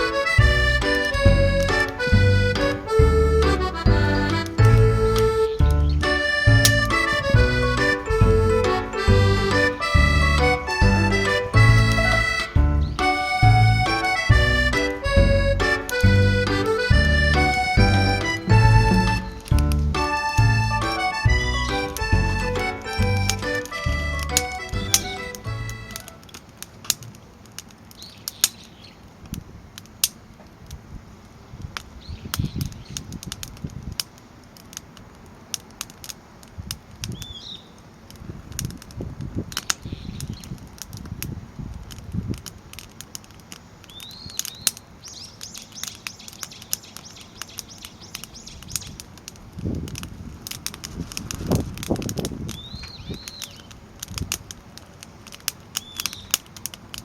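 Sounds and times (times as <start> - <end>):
bird chirping: 0.0 - 26.2, 37.1 - 37.8, 43.9 - 49.0, 52.5 - 53.8, 55.8 - 56.4
rushing flames: 0.0 - 57.0
wood fire crackling and popping: 0.0 - 57.0.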